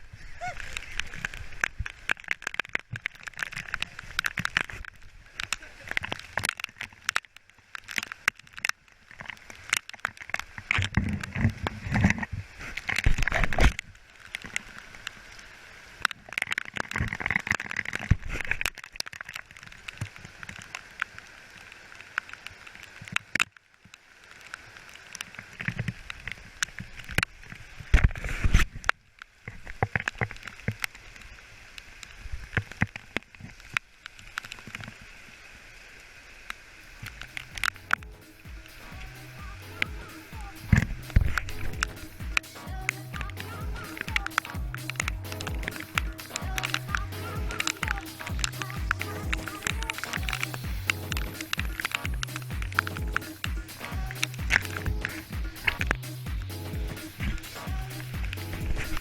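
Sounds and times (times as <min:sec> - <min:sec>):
wind rumbling on microphone: 0:10.6 - 0:14.0, 0:40.3 - 0:59.0
bike tyres crunching on dirt: 0:36.8 - 0:39.6, 0:43.5 - 0:59.0.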